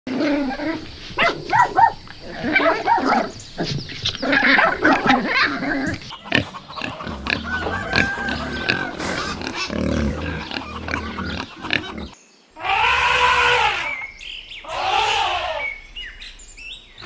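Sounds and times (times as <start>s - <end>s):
small dogs grunting and yapping: 0.1s - 12.2s
pigs grunting: 0.1s - 14.0s.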